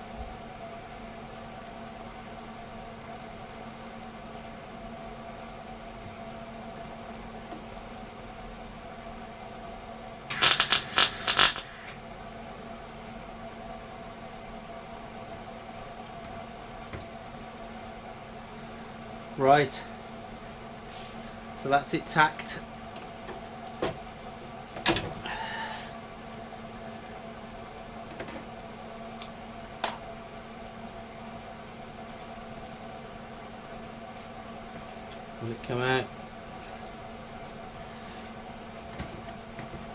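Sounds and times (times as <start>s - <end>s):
steady low hum: 0.0s - 39.9s
welder crackling: 10.3s - 12.0s.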